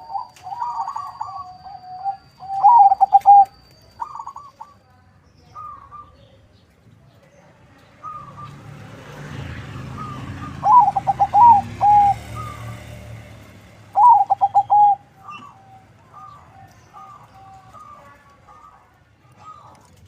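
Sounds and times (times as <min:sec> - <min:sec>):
dove cooing: 0:00.0 - 0:04.8, 0:09.9 - 0:13.0, 0:13.9 - 0:20.0
short bird calls: 0:00.0 - 0:04.8, 0:14.0 - 0:19.8.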